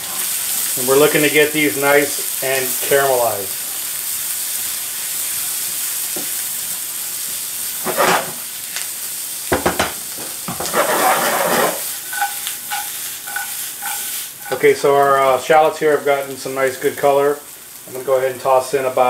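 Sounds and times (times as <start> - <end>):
shallots sizzling in butter: 0.0 - 19.0
spatula scraping and stirring: 7.8 - 8.4, 10.5 - 14.9.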